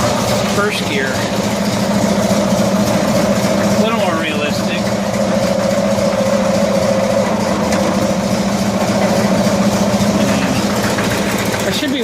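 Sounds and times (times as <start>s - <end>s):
small vehicle engine idling: 0.0s - 12.0s.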